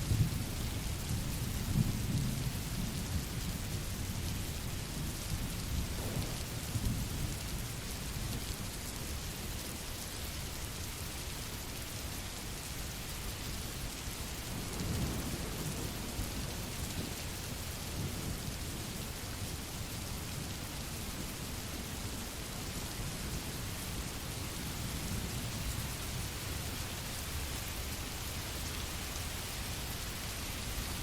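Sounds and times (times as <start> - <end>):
steady rain: 0.0 - 31.0
thunder rolling: 5.8 - 7.0.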